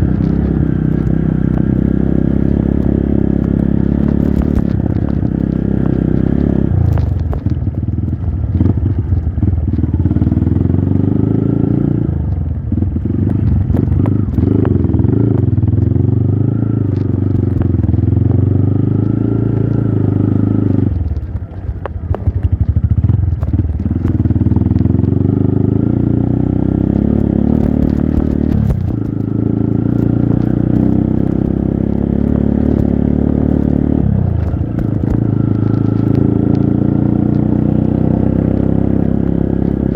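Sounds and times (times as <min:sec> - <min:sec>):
clicks and clatter: 0:00.0 - 0:10.0, 0:12.3 - 0:16.0, 0:16.9 - 0:18.1, 0:19.0 - 0:25.1, 0:26.9 - 0:37.7
motorcycle engine revving: 0:00.0 - 0:39.9.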